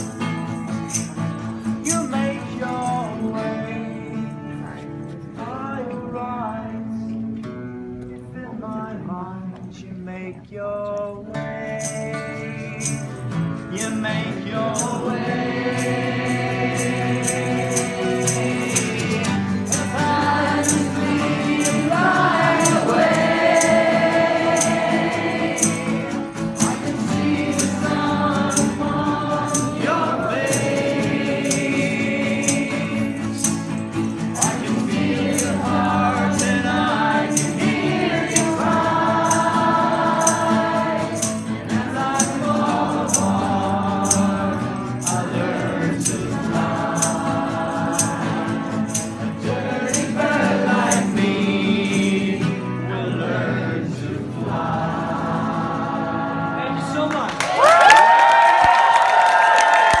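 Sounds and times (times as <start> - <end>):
voices singing: 0.0 - 1.2, 1.8 - 4.1, 11.6 - 57.4
high percussion strokes: 14.8 - 52.8.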